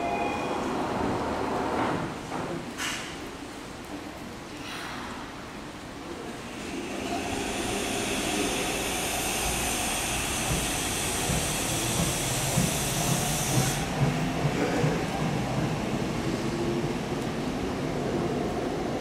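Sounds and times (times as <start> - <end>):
high hiss: 6.6 - 14.0
electric train rumbling with knocks: 6.9 - 17.4.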